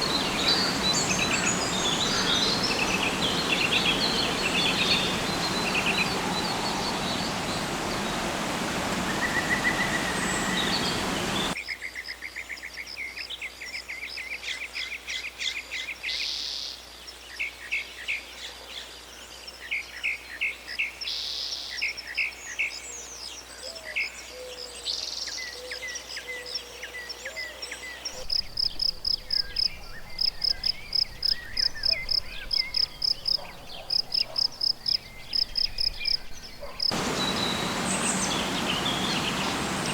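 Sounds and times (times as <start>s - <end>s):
birds chirping and calling: 0.0s - 11.6s, 36.3s - 39.9s
insects hissing: 0.0s - 11.6s, 36.8s - 39.9s.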